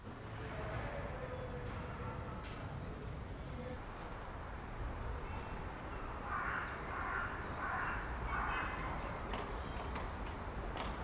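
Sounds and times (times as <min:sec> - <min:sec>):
bird calling: 0:05.2 - 0:10.0.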